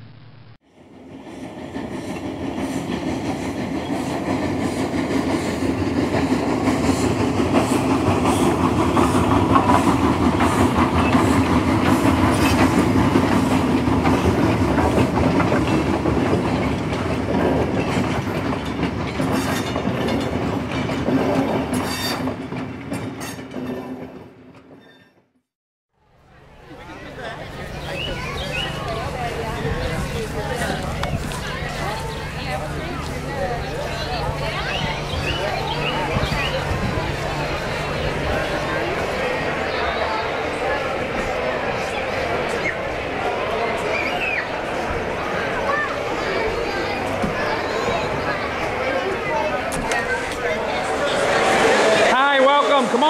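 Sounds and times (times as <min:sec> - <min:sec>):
train wheels clattering over rail joints: 0:01.2 - 0:25.2.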